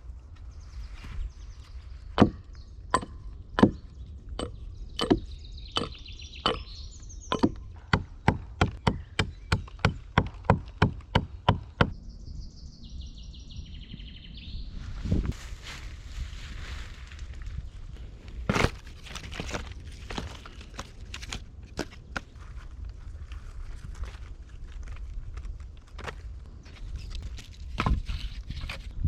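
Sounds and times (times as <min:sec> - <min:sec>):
axe chopping wood: 0:02.2 - 0:02.4, 0:07.3 - 0:11.9.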